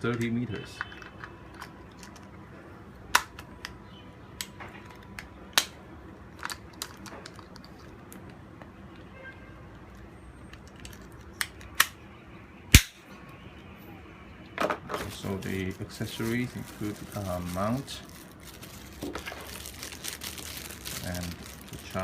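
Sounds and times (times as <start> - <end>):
hands handling plastic clicks: 0.0 - 2.4, 4.4 - 9.1, 9.9 - 12.0.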